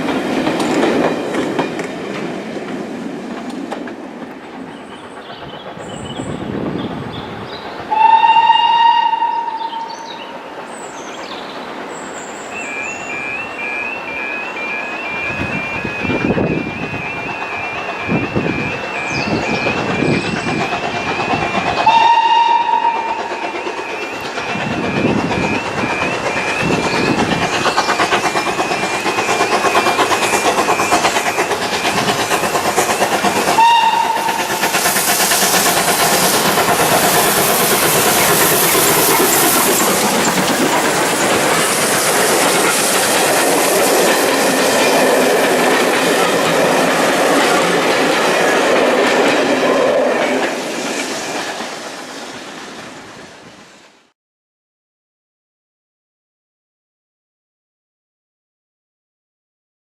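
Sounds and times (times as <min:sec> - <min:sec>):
train wheels clattering on rails: 0:00.0 - 0:53.4
steam whistle blasts: 0:07.9 - 0:10.2, 0:21.3 - 0:24.2, 0:33.5 - 0:34.7.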